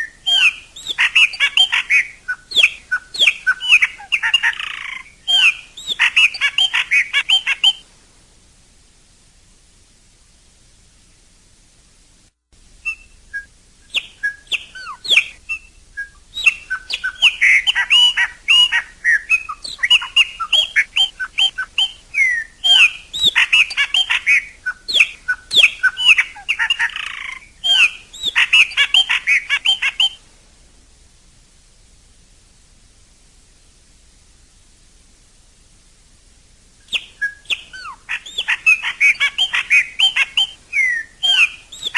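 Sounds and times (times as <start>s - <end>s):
blackbird singing: 0.0s - 7.8s, 12.8s - 30.2s, 36.8s - 41.9s
faint hiss: 0.0s - 41.9s.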